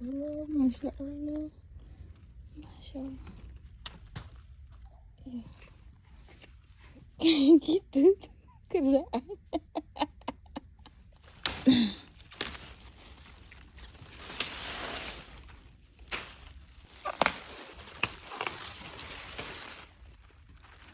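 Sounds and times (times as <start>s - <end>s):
crunching raw vegetables: 11.2s - 20.9s.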